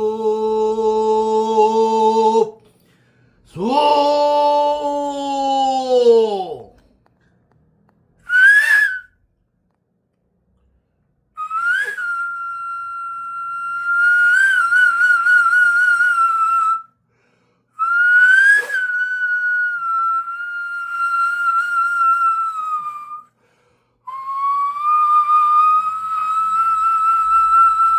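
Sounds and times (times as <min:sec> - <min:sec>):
stone flute playing: 0:08.2 - 0:09.2, 0:11.4 - 0:16.9, 0:17.8 - 0:23.3, 0:24.1 - 0:27.9.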